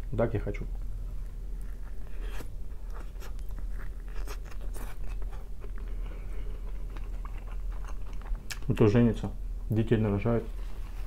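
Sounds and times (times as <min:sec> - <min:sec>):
person chewing a crunchy bun: 0:00.7 - 0:08.7.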